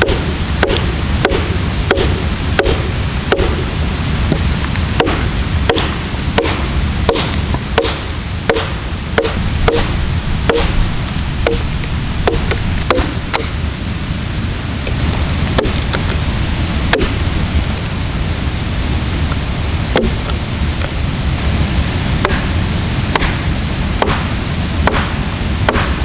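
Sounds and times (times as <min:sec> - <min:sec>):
axe chopping wooden log: 0:00.0 - 0:03.7, 0:05.0 - 0:09.9, 0:11.4 - 0:13.5, 0:15.6 - 0:15.8, 0:16.9 - 0:17.2, 0:20.0 - 0:20.2, 0:23.1 - 0:23.4, 0:24.0 - 0:26.0.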